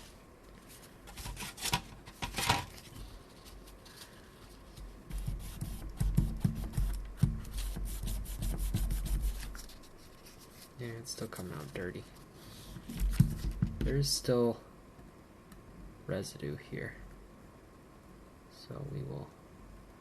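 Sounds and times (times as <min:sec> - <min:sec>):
paper towel rubbing: 0:03.3 - 0:12.0.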